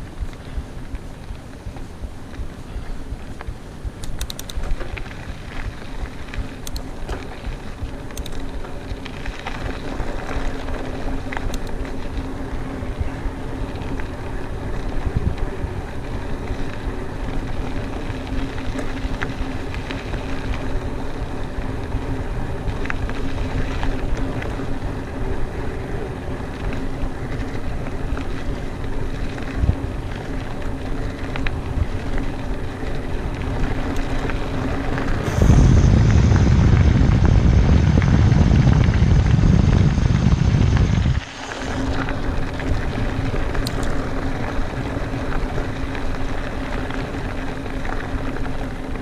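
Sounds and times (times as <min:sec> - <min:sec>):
bike clicks and rattles: 0:00.0 - 0:35.4, 0:37.5 - 0:49.0
bike tyres rumbling on dirt: 0:00.0 - 0:49.0
wind buffeting microphone: 0:09.8 - 0:47.3.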